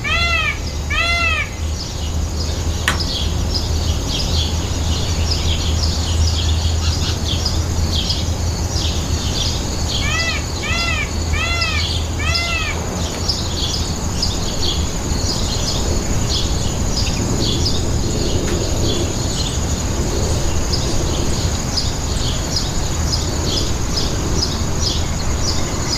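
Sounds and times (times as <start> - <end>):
peacock calling: 0.0 - 3.5, 9.9 - 14.0
small birds chirping: 0.0 - 19.8.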